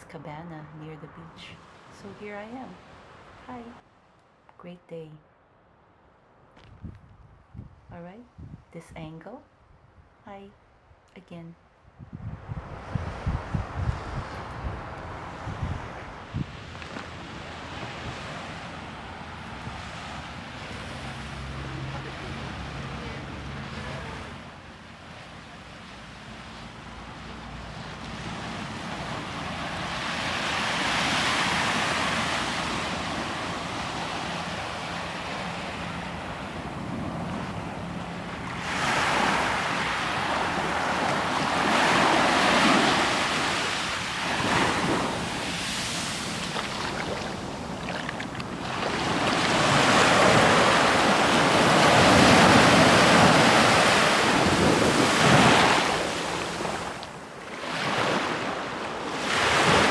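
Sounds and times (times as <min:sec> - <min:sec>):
ocean waves breaking: 0:12.6 - 0:59.9.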